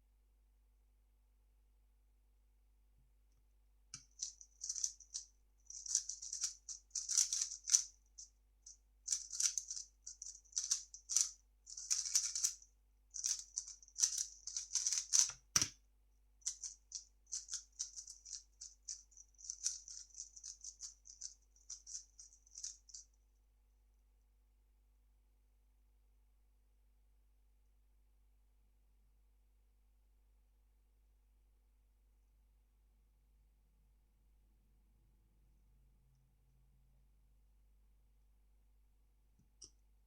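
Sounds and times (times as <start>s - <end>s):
puzzle cube clicking: 4.0s - 5.0s, 5.8s - 7.9s, 9.1s - 12.6s, 13.2s - 15.8s.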